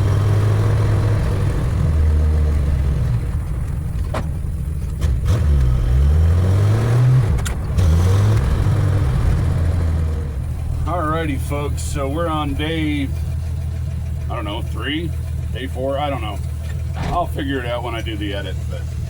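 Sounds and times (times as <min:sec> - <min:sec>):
car engine revving: 0:00.0 - 0:19.0
sharp clicks: 0:07.3 - 0:08.5
person speaking: 0:10.8 - 0:13.2.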